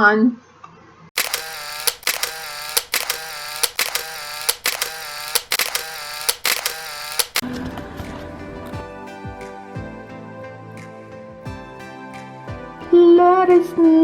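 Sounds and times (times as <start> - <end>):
brief whirring tone: 1.2 - 7.4
camera shutter clicking: 1.2 - 7.5.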